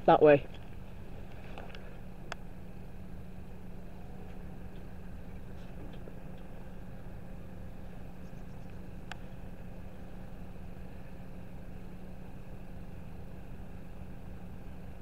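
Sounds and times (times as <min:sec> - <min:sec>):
idling engine hum: 0:00.0 - 0:15.0.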